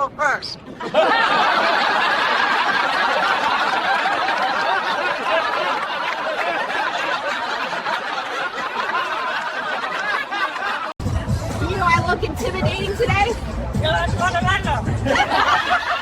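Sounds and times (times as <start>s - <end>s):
crowd laughing: 0.7s - 11.0s, 14.8s - 16.0s.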